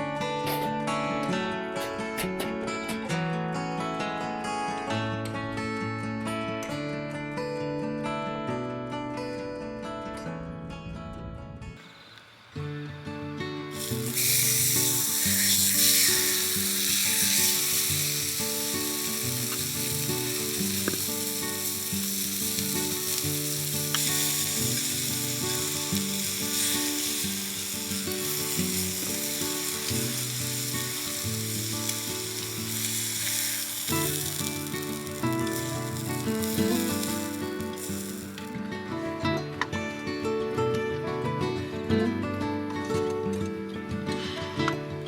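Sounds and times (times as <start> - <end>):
meat sizzling over wood fire: 11.8 - 39.2
soft background music: 13.2 - 30.3, 36.3 - 40.5.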